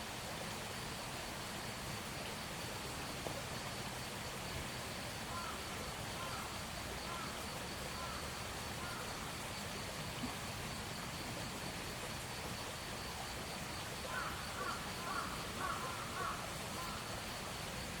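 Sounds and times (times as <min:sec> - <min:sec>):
insect chirring: 0:14.0 - 0:17.2.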